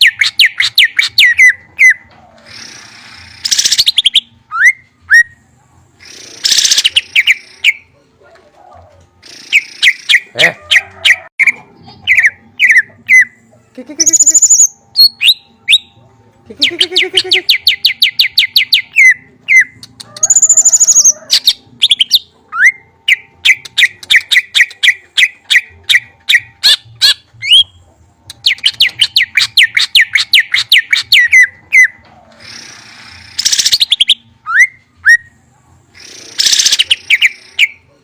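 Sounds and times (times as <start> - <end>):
songbird trilling: 14.0 - 15.8.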